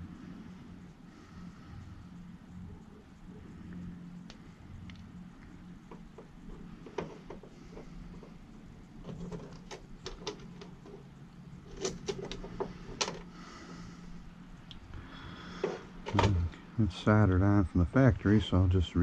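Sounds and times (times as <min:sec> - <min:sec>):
hands handling parts and tools: 0:09.0 - 0:11.0, 0:11.7 - 0:13.3.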